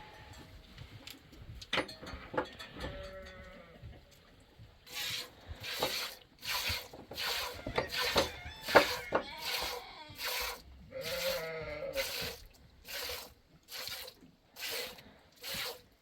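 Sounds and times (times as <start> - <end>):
goats bleating: 7.6 - 12.3.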